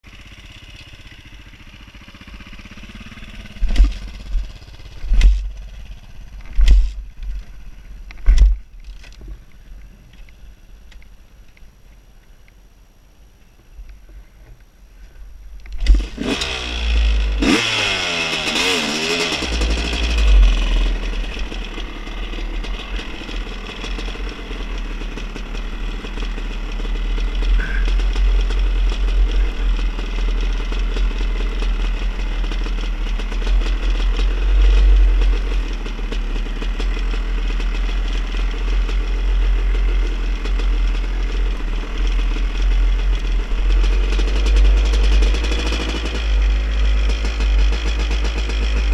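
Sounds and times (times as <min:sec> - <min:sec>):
vehicle engine revving: 0:15.8 - 0:48.9.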